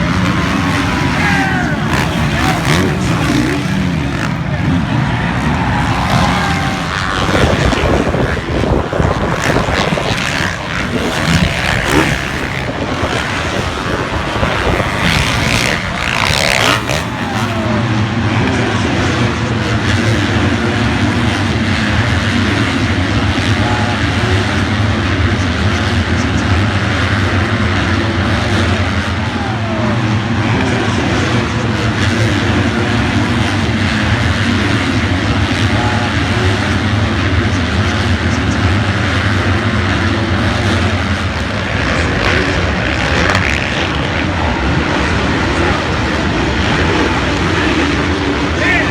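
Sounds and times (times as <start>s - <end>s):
wind noise: 0.0s - 17.6s
motocross bike engine: 0.0s - 48.9s.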